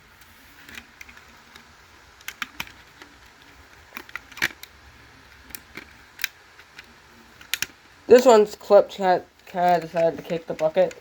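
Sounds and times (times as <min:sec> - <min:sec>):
plastic clicks and taps: 0:05.4 - 0:07.8.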